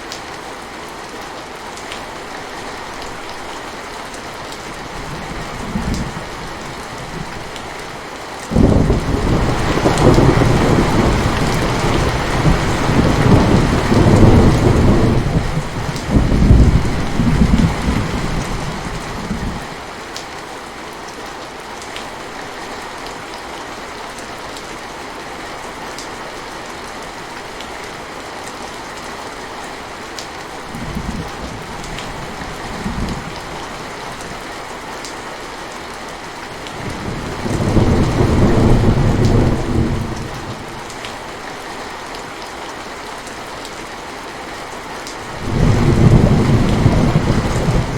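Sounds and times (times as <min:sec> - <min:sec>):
steady rain: 0:00.0 - 0:47.9
rolling thunder: 0:08.5 - 0:19.6, 0:36.8 - 0:40.9, 0:45.4 - 0:47.9.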